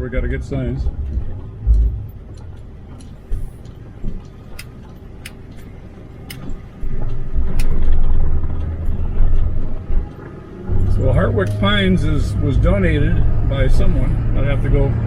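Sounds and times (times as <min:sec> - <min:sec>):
light clicks and rattles: 0:00.0 - 0:10.6
vehicle road and engine rumble: 0:00.0 - 0:15.0.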